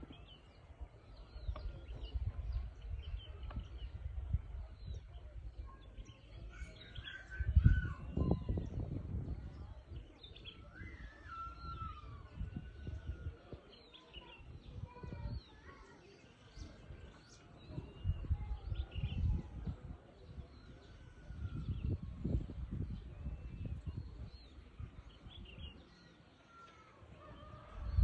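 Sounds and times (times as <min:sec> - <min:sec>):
birds chirping and whistling: 0:10.1 - 0:13.3.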